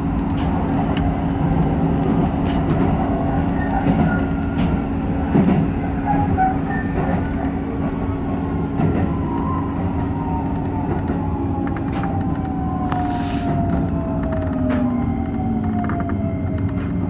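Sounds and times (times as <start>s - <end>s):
train wheels rumbling on rail: 0.0s - 17.0s
clicks: 13.8s - 17.0s.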